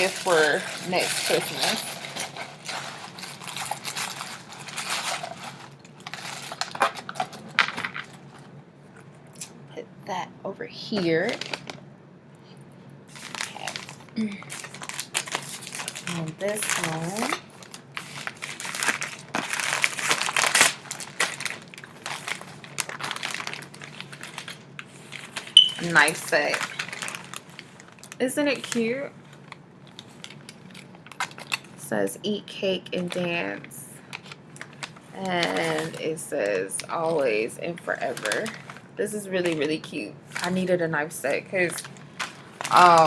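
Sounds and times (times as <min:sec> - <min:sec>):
gift wrapping crinkling: 0:00.0 - 0:08.4, 0:11.2 - 0:11.8, 0:13.1 - 0:31.8, 0:33.0 - 0:43.0
packaging rustling: 0:00.0 - 0:08.5, 0:13.1 - 0:28.2, 0:29.3 - 0:31.7, 0:41.6 - 0:43.0.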